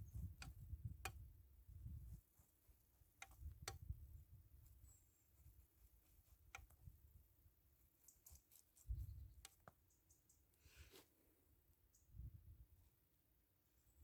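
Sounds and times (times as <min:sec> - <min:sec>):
faint sharp clicks: 0:06.4 - 0:06.8.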